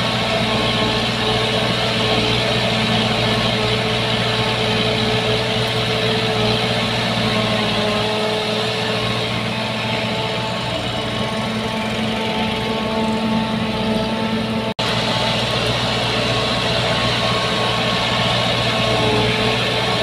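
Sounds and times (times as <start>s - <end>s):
bulldozer diesel engine droning: 0.0s - 20.0s.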